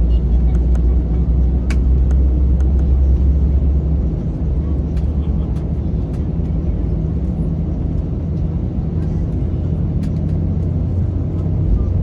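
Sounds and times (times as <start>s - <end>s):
aircraft engines droning: 0.0s - 12.0s.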